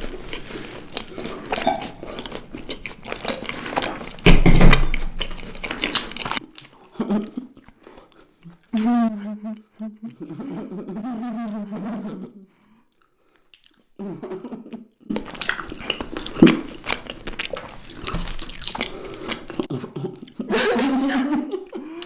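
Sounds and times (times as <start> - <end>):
person chewing crunchy food: 0.0 - 8.9, 12.9 - 14.0, 15.1 - 20.5.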